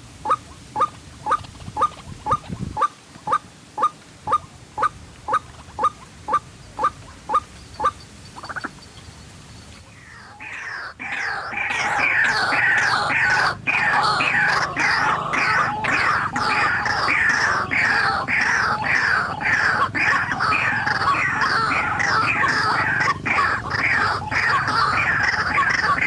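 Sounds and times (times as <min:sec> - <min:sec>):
harsh overlapping bird calls: 0:00.0 - 0:26.0.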